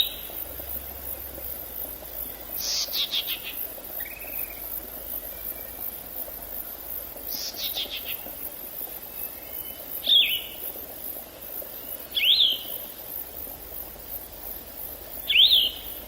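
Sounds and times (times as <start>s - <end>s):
faint background hiss: 0.0s - 16.0s
forest birds calling: 2.2s - 6.1s, 7.2s - 8.4s, 9.0s - 10.6s, 11.8s - 13.0s, 15.2s - 16.0s.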